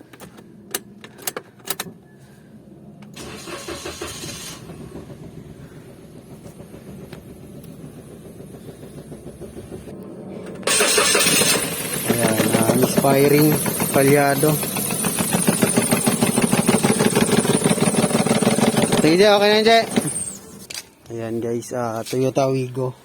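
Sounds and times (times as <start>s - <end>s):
car engine cranking and starting: 3.0s - 21.0s
engine idling roughly: 3.2s - 20.7s.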